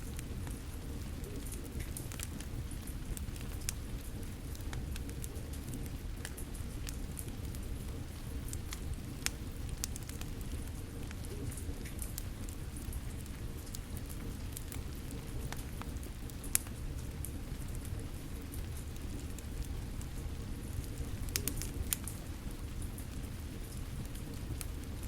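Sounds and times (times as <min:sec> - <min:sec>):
wood fire crackling and popping: 0:00.0 - 0:25.0.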